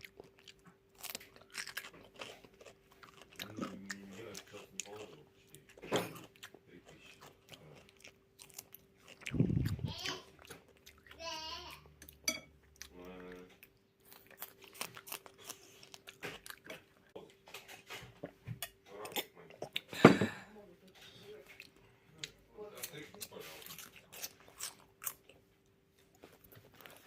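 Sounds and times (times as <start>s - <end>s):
chewing crunches and mouth clicks: 0.0s - 11.2s, 11.8s - 17.2s, 21.5s - 25.5s
short pitched vocal sounds: 9.3s - 10.2s.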